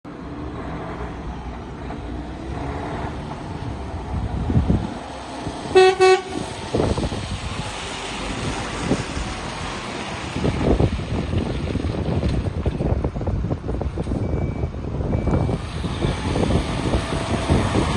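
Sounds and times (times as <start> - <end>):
truck horn toots: 5.7 - 6.5.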